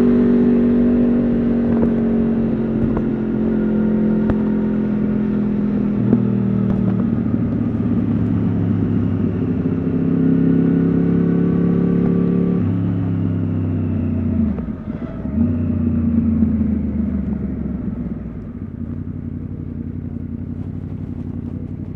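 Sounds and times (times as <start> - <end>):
motorcycle engine while riding: 0.0 - 21.9.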